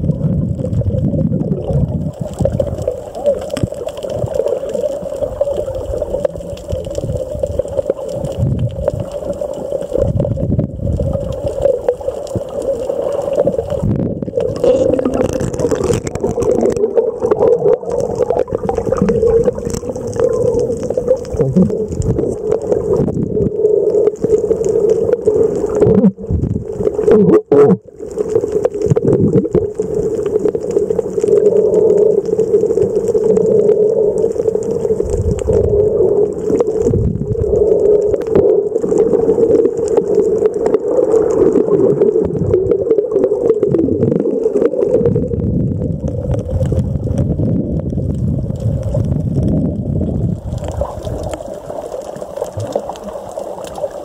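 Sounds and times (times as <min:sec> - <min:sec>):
water gurgling and sloshing: 0:00.0 - 0:54.0.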